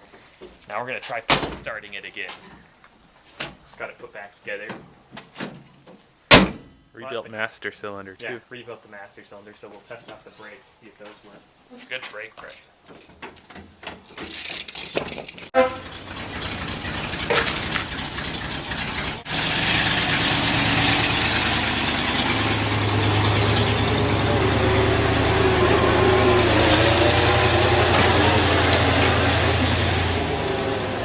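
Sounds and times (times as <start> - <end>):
truck engine running: 15.6 - 31.0.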